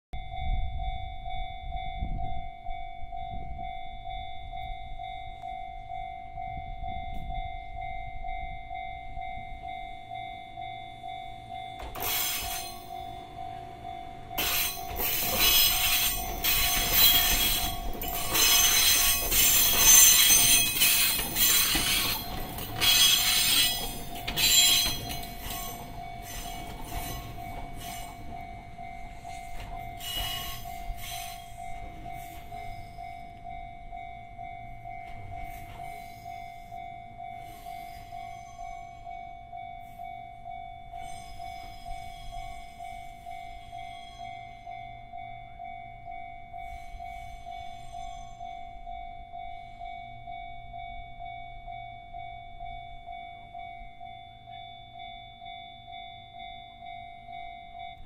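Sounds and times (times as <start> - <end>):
level-crossing warning bell: 0.2 - 58.0
train wheel squeal: 6.5 - 58.0
train wheels clacking on rails: 10.4 - 50.0.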